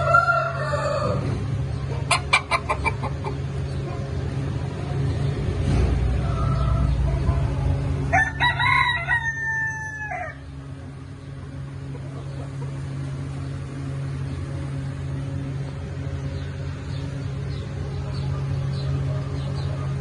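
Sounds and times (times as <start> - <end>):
rooster crowing: 0.0 - 1.3, 8.1 - 10.5
steady low hum: 0.0 - 20.0.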